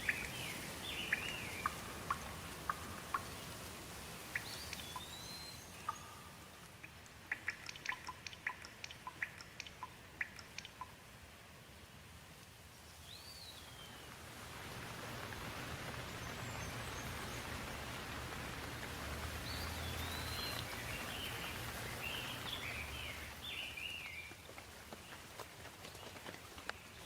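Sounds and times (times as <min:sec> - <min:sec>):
bird chirping: 0:00.0 - 0:11.0, 0:12.8 - 0:14.2, 0:15.9 - 0:18.0, 0:19.2 - 0:25.3
steady rain: 0:00.0 - 0:27.0.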